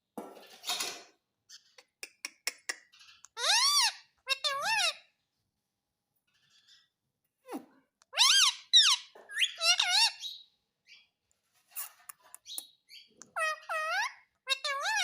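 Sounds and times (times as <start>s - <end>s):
parrot calling: 1.5s - 5.1s, 7.5s - 11.1s, 11.8s - 15.0s.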